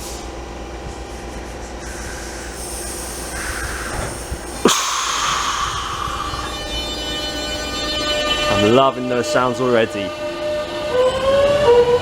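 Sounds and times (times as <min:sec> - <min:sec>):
electric train hum: 0:00.0 - 0:12.0
loud hiss: 0:01.9 - 0:07.3.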